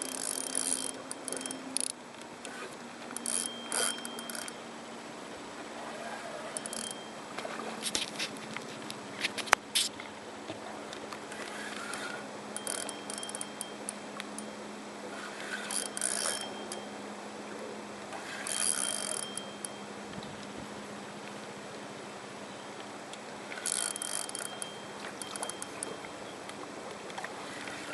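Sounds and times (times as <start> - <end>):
fishing reel clicking: 0.0 - 4.6, 6.0 - 7.0, 11.3 - 14.5, 15.1 - 16.9, 18.2 - 19.8, 23.6 - 26.0
steady low hum: 0.0 - 27.9.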